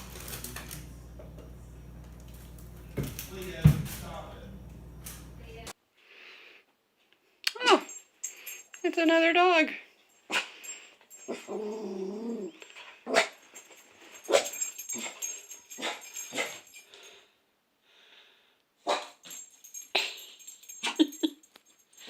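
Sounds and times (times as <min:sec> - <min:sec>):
dog barking: 0:13.1 - 0:13.4, 0:18.8 - 0:19.2.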